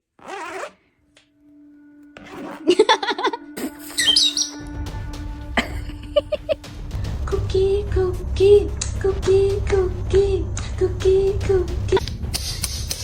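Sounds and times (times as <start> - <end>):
background music: 0.7 - 13.0
parrot chirping and squawking: 4.0 - 4.6.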